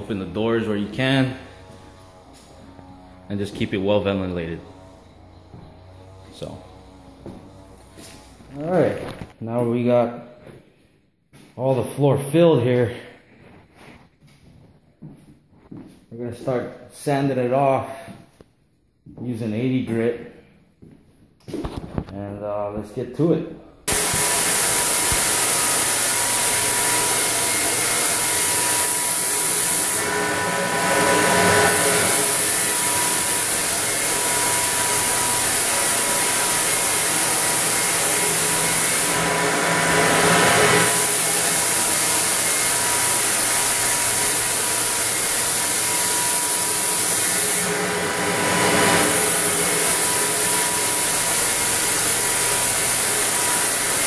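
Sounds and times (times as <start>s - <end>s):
floor sanding machine grinding: 0.0s - 9.9s, 23.9s - 54.0s.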